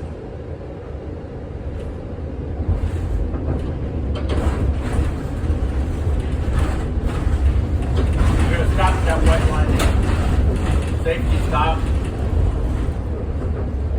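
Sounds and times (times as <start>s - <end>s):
streetcar motors and wheels rumble: 0.0s - 13.9s.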